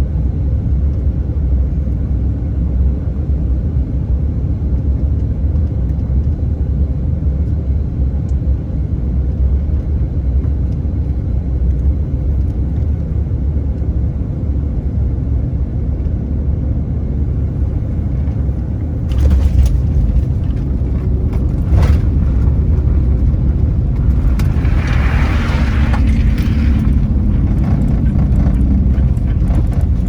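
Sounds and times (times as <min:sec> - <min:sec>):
airliner cabin rumble: 0:00.0 - 0:30.0
rushing roar: 0:20.7 - 0:30.0.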